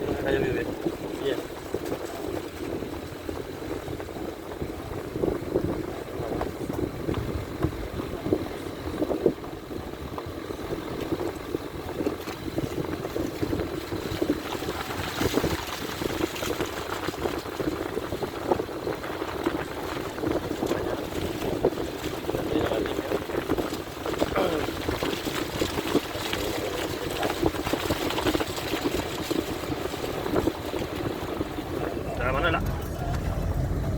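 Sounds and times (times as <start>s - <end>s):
wind buffeting microphone: 0.0s - 33.9s
floodwater rushing: 12.6s - 33.9s.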